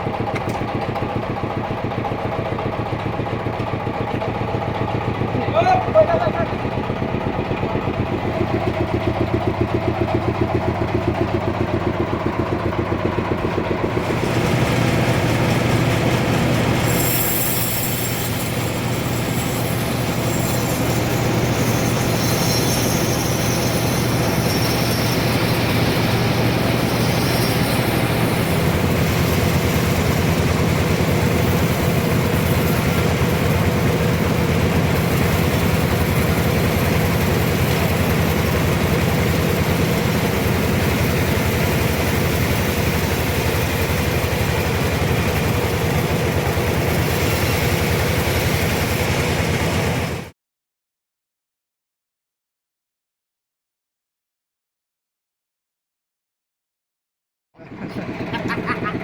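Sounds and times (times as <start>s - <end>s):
sawmill engine running: 0.0s - 50.3s, 57.6s - 59.0s
saw cutting log hiss: 14.0s - 34.4s.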